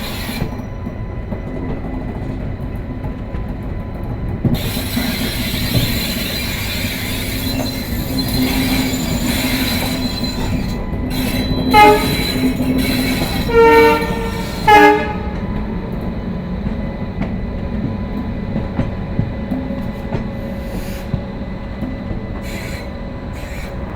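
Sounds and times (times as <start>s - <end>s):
train rumbling: 0.0s - 23.9s
locomotive horn blasts: 11.6s - 15.6s.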